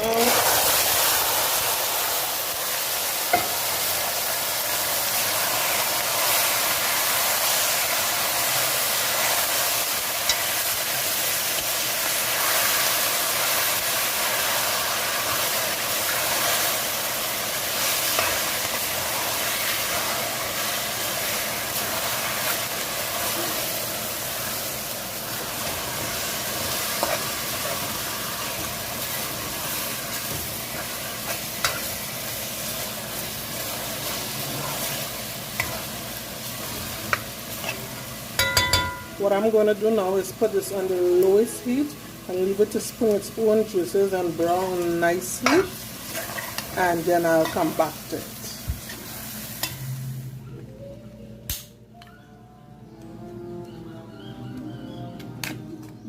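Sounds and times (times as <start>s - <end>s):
chicken sizzling in hot oil: 0.0s - 39.4s, 40.3s - 50.3s
utensil knocking on pot: 38.4s - 39.1s.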